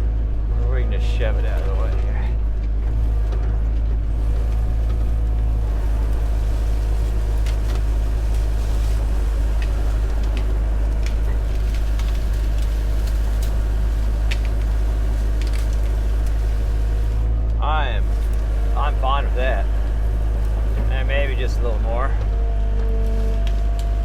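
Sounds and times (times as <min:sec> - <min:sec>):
excavator diesel engine drone: 0:00.0 - 0:24.0
faint sharp clicks and cracks: 0:06.0 - 0:17.6, 0:22.3 - 0:24.0.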